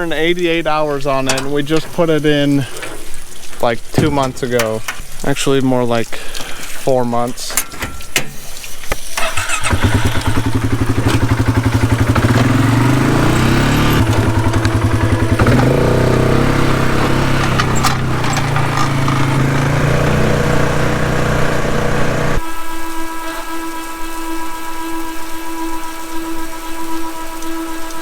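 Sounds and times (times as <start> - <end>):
engine starting and running: 9.0 - 22.6.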